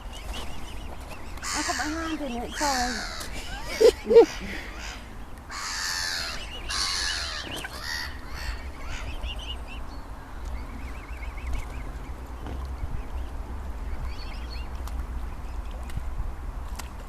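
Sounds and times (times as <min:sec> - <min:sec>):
harsh raspy bird calls: 0:01.4 - 0:09.3.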